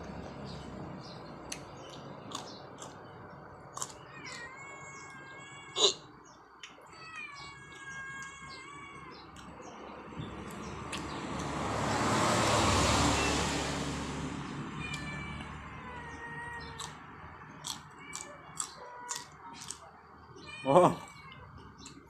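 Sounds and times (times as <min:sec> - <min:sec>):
vehicle passing: 0:00.0 - 0:04.3, 0:09.0 - 0:21.8
cat meowing: 0:03.8 - 0:10.1, 0:14.7 - 0:21.9.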